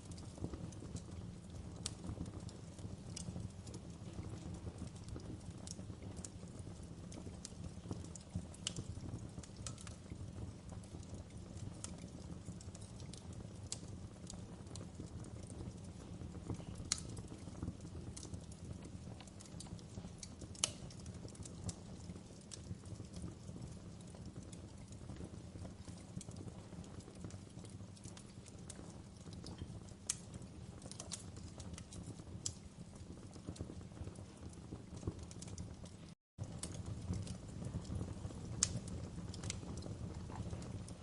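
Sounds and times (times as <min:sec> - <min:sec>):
wood fire crackling: 0:00.0 - 0:41.0
sharp pops of burning logs: 0:07.4 - 0:15.5, 0:16.1 - 0:23.5, 0:27.3 - 0:35.8, 0:36.4 - 0:41.0.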